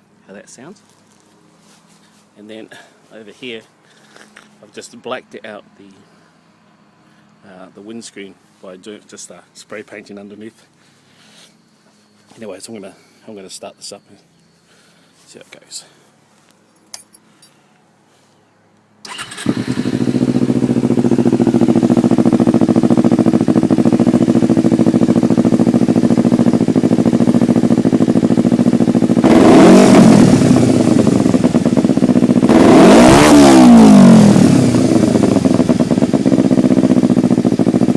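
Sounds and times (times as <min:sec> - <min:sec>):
motorcycle engine idling and revving: 0:19.0 - 0:37.9.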